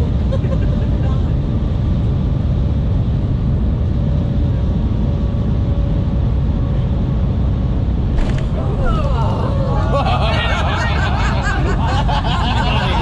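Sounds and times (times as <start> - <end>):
train cabin rumble: 8.0 - 13.0.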